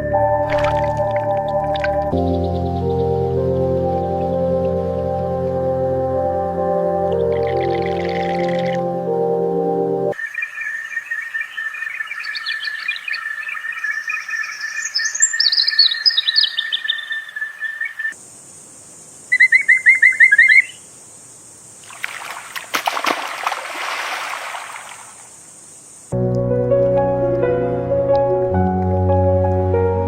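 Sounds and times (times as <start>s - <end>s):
music: 0.0s - 10.2s, 26.1s - 30.0s
birds chirping and calling: 10.1s - 18.2s, 19.3s - 20.8s
high steady hiss: 18.1s - 22.0s, 24.6s - 26.2s.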